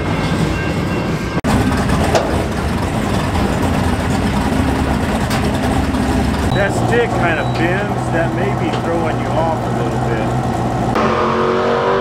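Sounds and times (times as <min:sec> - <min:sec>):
freight train rumbling: 0:00.0 - 0:11.0
car engine idling: 0:01.4 - 0:11.0.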